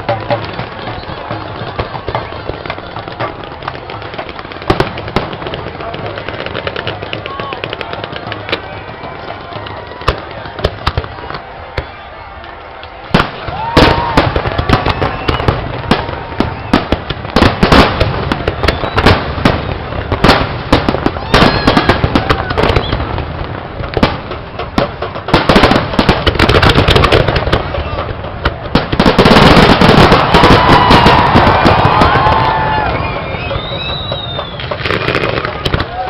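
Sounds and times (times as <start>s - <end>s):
fireworks bangs and crackles: 0.0s - 36.0s.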